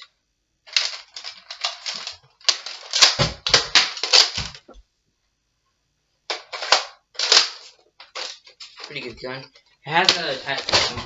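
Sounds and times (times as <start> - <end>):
plastic toy blaster clicks and clatter: 0.7 - 4.6, 6.3 - 9.0.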